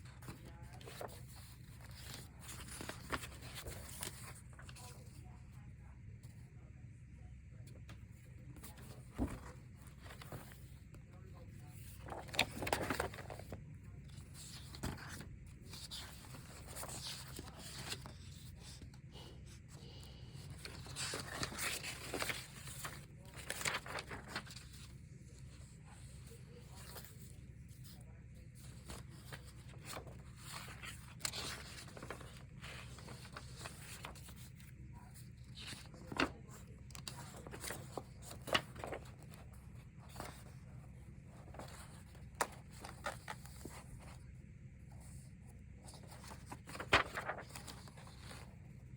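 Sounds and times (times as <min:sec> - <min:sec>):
paper rustling: 0:00.0 - 0:05.4, 0:07.7 - 0:44.2, 0:44.9 - 0:48.9
low room hum: 0:00.0 - 0:48.9.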